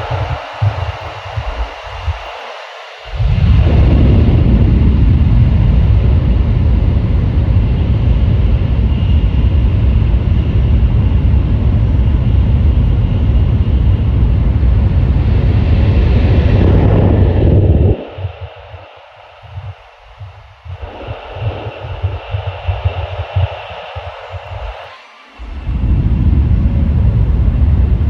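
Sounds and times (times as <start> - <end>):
low hum: 0.0 - 2.4, 3.0 - 28.0
track noise: 0.0 - 2.4, 10.9 - 28.0
wind hiss: 0.0 - 28.0.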